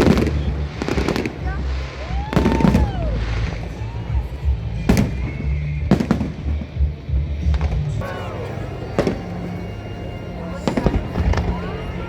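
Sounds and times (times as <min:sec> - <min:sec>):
fireworks bangs: 0:00.0 - 0:06.9, 0:07.6 - 0:12.0
background music: 0:00.0 - 0:12.0.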